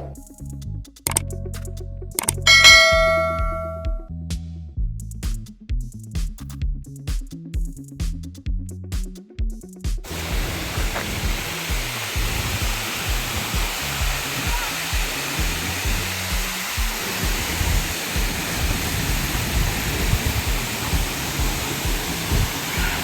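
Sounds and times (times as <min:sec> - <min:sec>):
music bass beat: 0:00.0 - 0:23.0
waterfall roaring: 0:10.1 - 0:23.0.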